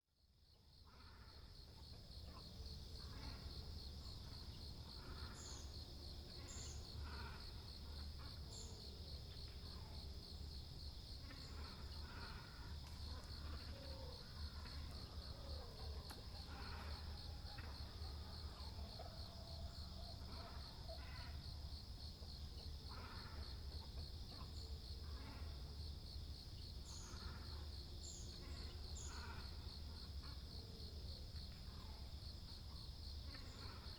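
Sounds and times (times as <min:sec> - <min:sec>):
cormorants and herons calling: 0:03.0 - 0:08.8, 0:11.2 - 0:21.5, 0:26.9 - 0:30.4.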